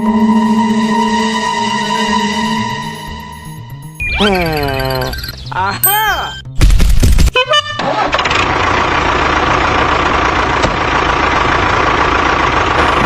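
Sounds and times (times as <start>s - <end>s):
engine running steadily: 7.4s - 13.0s
loud engine clattering: 7.8s - 13.0s.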